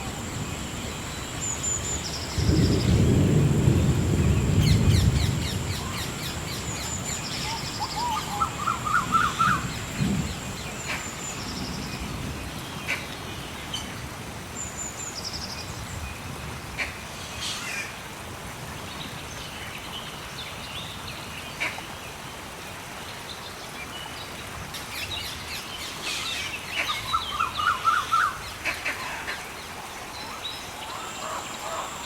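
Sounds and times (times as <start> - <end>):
birds chirping and trilling: 4.3 - 13.9, 24.8 - 32.0.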